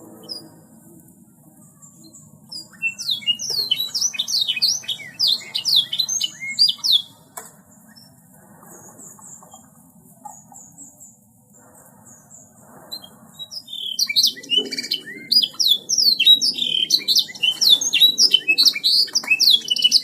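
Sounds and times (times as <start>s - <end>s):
canary singing: 1.6s - 8.2s, 12.0s - 20.0s.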